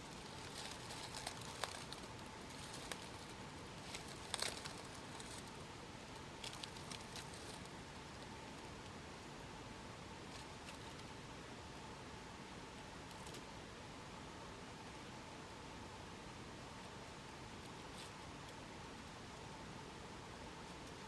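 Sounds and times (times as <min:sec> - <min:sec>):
faint rustling: 0:00.0 - 0:05.6, 0:06.4 - 0:07.8
background hiss: 0:00.0 - 0:21.0.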